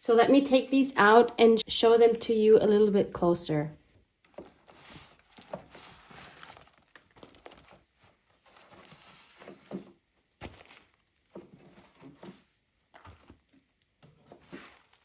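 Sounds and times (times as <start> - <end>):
paper rustling: 4.3 - 13.6, 14.2 - 15.0
light knocks of journals: 9.7 - 11.5.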